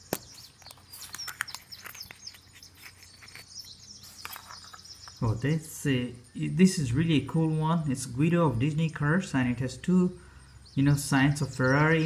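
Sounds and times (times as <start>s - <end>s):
plastic capsule clicks and crinkles: 0.0s - 5.2s
faint bird chirps: 0.0s - 12.0s.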